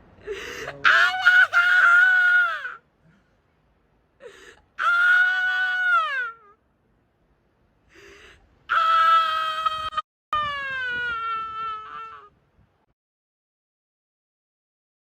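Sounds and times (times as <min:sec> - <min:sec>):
sharp gasping breath: 0:07.9 - 0:08.5.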